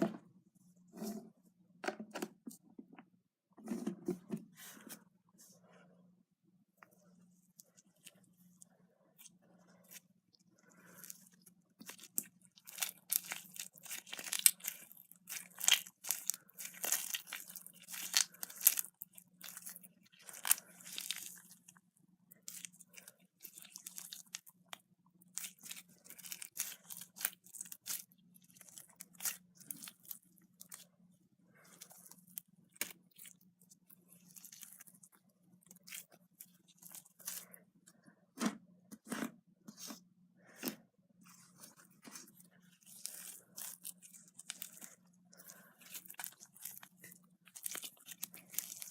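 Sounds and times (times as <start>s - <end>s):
slime crackling and popping: 11.8s - 21.5s, 42.8s - 48.9s.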